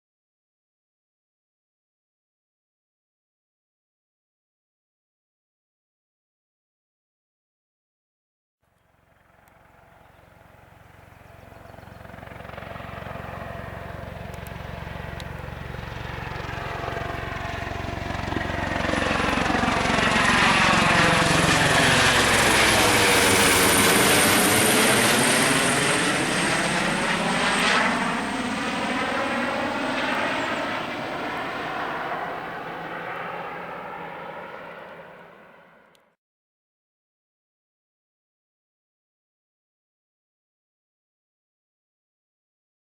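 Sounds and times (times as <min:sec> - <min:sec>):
helicopter flying past: 0:08.7 - 0:36.2.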